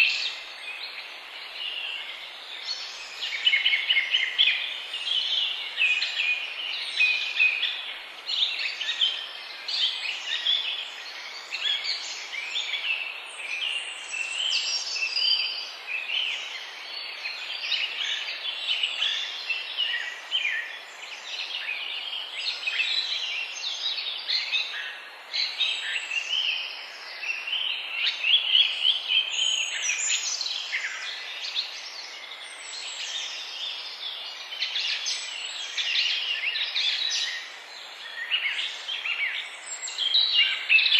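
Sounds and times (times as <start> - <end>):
songbirds chirping and singing: 0.0 - 40.9
steady background hiss: 0.0 - 40.9.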